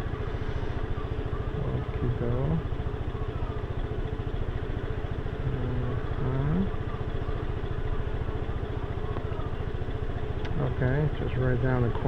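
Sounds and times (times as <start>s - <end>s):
motorbike engine running: 0.0s - 12.0s.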